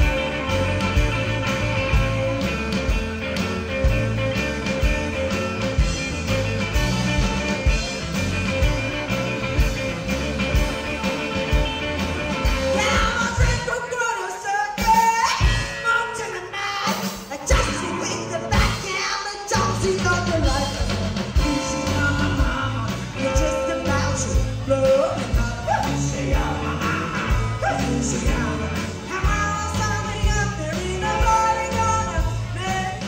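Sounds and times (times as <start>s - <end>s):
drum and bass beat: 0.0s - 13.8s
rock band playing live: 0.0s - 33.0s
person singing: 12.3s - 33.0s.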